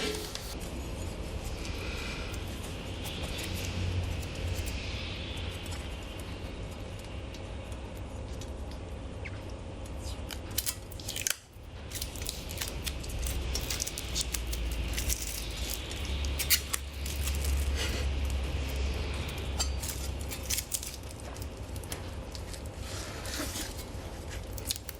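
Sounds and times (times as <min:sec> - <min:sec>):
steady low rumble: 0:00.0 - 0:24.9
plastic film crackling: 0:10.2 - 0:24.9.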